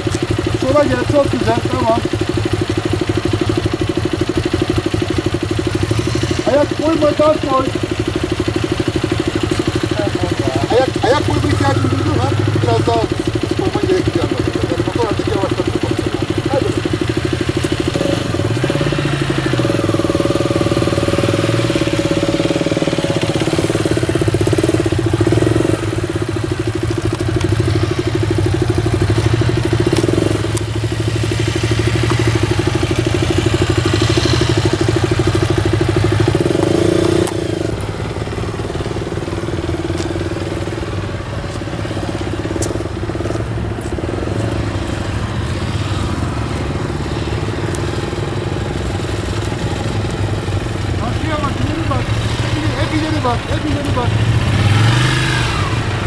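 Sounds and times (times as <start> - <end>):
motorcycle engine at low revs: 0.0 - 56.0.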